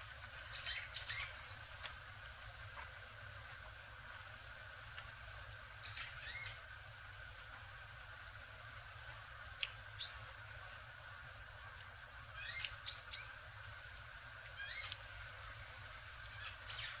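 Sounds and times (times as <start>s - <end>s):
faint background noise: 0.0s - 17.0s
small birds chirping: 0.4s - 2.0s, 5.8s - 6.6s, 9.6s - 10.3s, 12.3s - 13.4s, 14.6s - 15.1s, 16.2s - 17.0s.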